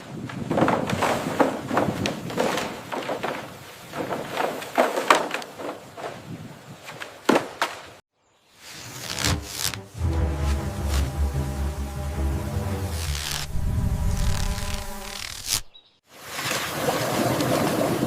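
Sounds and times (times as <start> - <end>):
scraping noises: 8.6 - 15.7.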